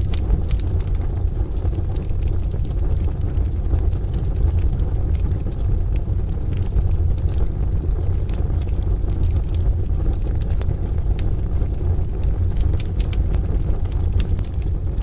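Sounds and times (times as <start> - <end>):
rain: 0.0 - 15.0
wood fire crackling: 0.0 - 15.0.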